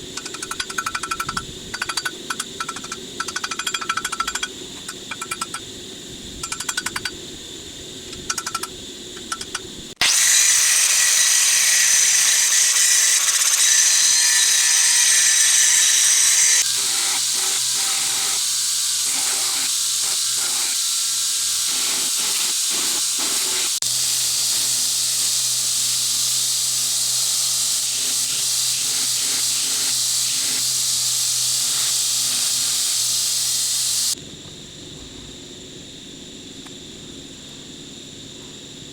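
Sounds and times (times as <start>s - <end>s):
loud steady hiss: 9.8s - 34.2s.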